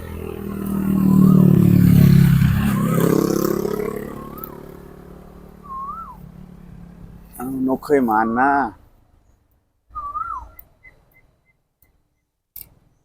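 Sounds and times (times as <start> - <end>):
motor vehicle passing: 0.0 - 8.8.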